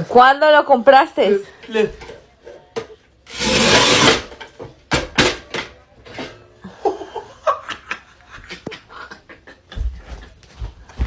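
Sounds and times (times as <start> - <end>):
person laughing: 6.6 - 10.4.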